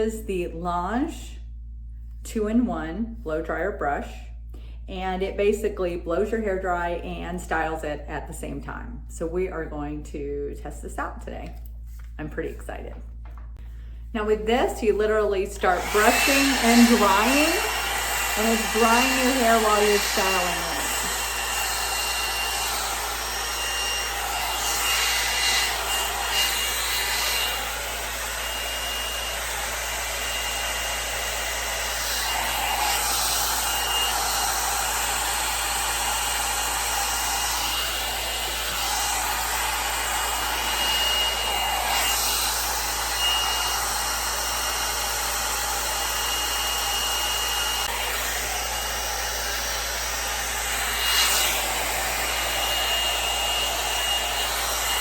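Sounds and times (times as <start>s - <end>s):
blow dryer brush running: 14.1s - 55.0s.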